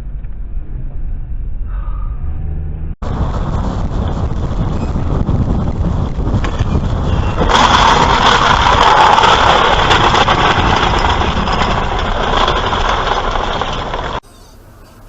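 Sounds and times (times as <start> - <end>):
vehicle engine rumble: 0.0 - 15.0
road and wind hiss: 3.0 - 7.9.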